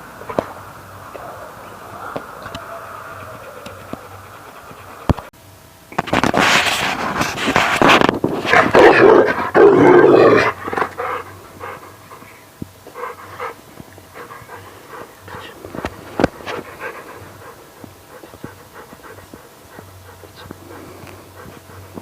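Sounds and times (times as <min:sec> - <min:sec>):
dog making loud sounds: 0:01.2 - 0:05.3.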